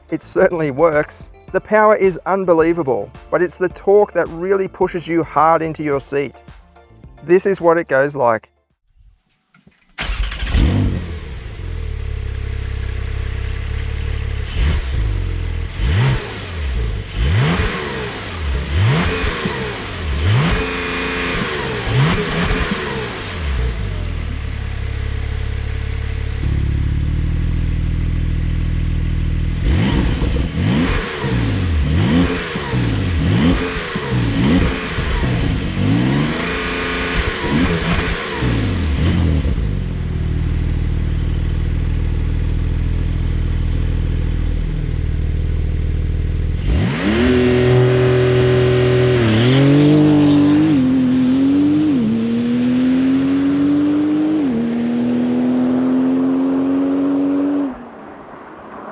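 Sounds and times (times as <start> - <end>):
car engine idling and revving: 9.6 - 58.9
car accelerating through upshifts: 14.4 - 24.2, 29.6 - 39.8, 46.6 - 58.9.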